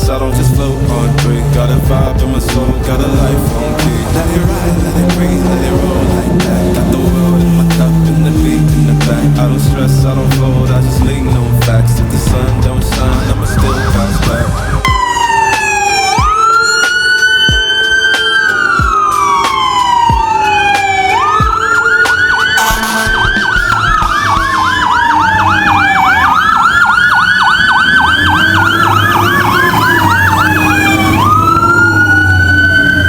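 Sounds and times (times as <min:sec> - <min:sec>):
heavy vehicle engine rumbling: 0:00.0 - 0:16.1, 0:18.6 - 0:33.0
siren wailing: 0:00.0 - 0:33.0
siren fast yelp: 0:13.1 - 0:33.0.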